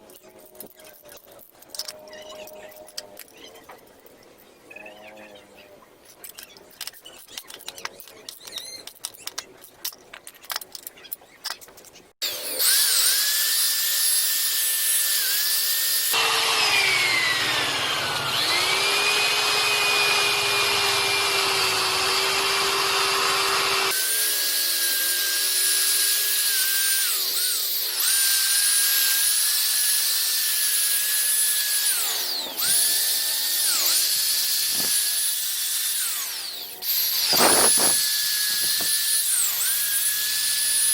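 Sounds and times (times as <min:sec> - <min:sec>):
power tool buffing metal whine: 0:12.2 - 0:40.9.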